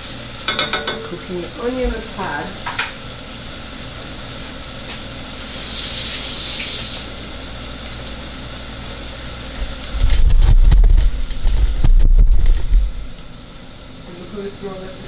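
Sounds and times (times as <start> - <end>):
food sizzling in a pot: 0.0 - 10.4
camera microphone handling rumble: 9.6 - 13.2.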